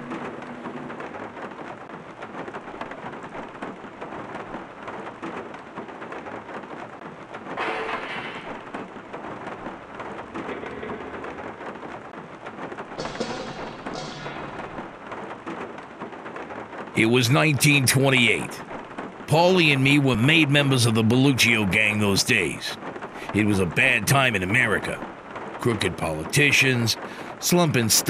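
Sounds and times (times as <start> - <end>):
thunder: 0.0 - 17.0
steady rain: 0.0 - 28.0.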